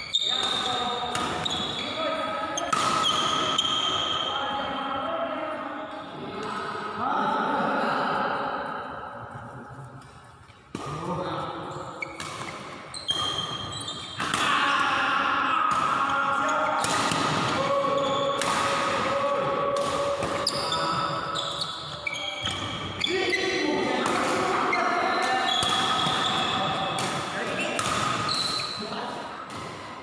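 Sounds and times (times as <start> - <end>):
rackets hitting shuttlecock: 0.3 - 4.2, 12.0 - 14.8, 16.8 - 23.1, 23.9 - 28.7.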